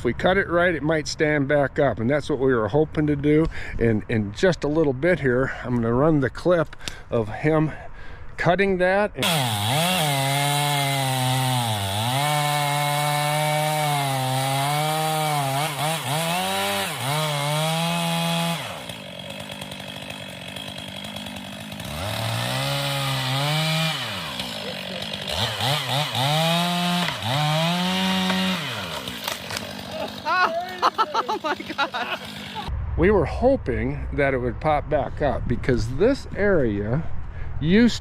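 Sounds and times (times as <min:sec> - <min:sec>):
chainsaw cutting a tree: 0:09.2 - 0:32.7.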